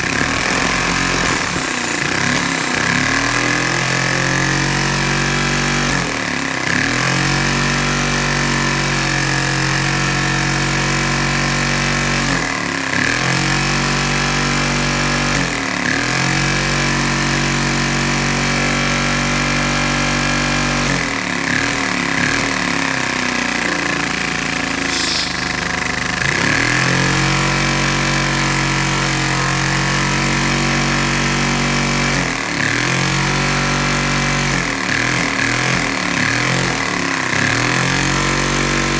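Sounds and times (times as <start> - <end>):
vacuum cleaner motor whining: 0.0 - 6.0, 23.5 - 27.3.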